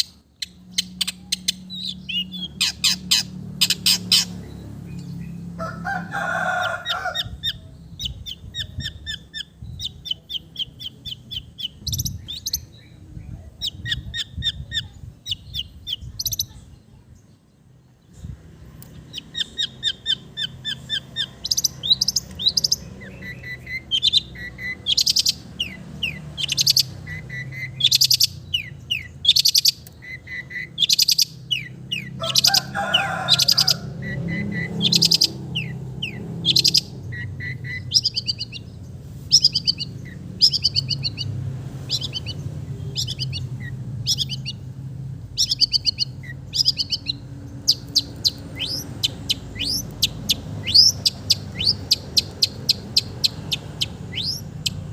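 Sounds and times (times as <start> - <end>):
shrike singing: 18.9 - 54.9.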